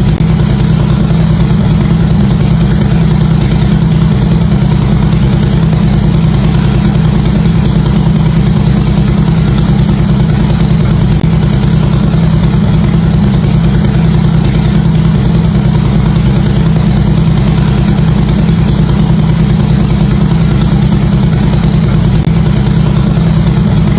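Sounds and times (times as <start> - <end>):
motorcycle engine idling: 0.0 - 23.9.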